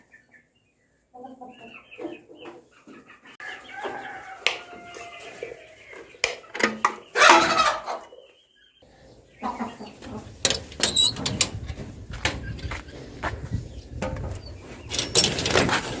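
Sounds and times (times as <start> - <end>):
chicken clucking: 0.0 - 10.7
chicken squawking: 7.1 - 8.2.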